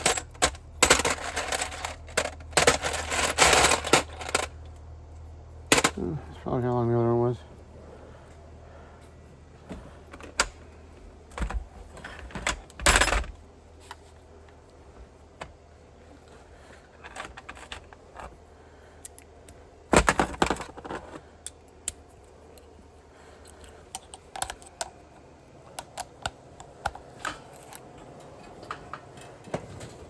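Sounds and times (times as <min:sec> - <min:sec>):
metal hardware clattering: 0:00.0 - 0:04.6, 0:05.7 - 0:06.2.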